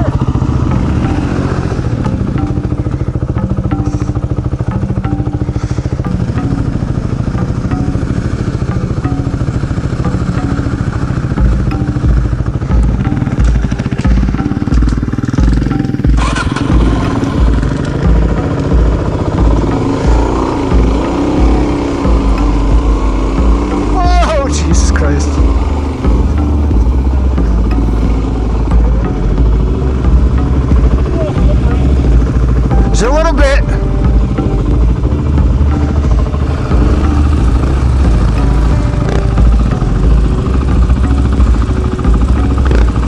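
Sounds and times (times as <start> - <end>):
motorcycle engine running: 0.0 - 43.0
low regular thumping: 11.3 - 43.0.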